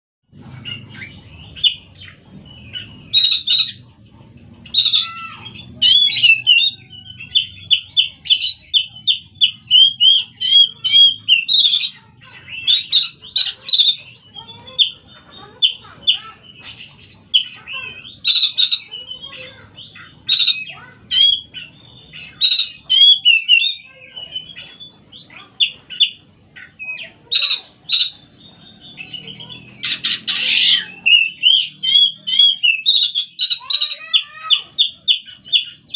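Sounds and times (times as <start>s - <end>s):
bird singing whistles and chirps: 17.4s - 35.9s.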